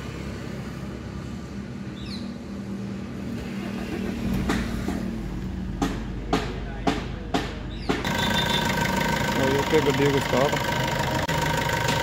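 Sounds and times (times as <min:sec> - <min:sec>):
diesel engine idling: 0:03.6 - 0:12.0.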